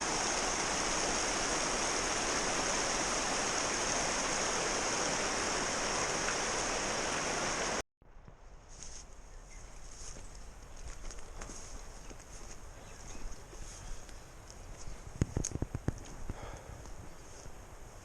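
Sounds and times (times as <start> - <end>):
river water rushing: 0.0 - 7.8.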